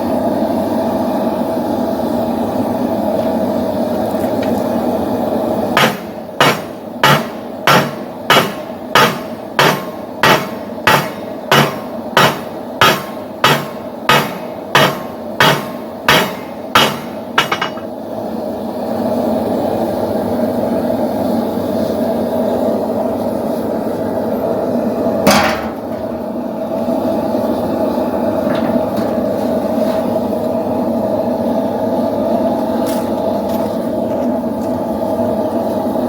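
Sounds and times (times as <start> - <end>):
steady rushing hum: 0.0 - 36.0
hammer striking steel on anvil: 5.8 - 17.9, 25.3 - 26.3.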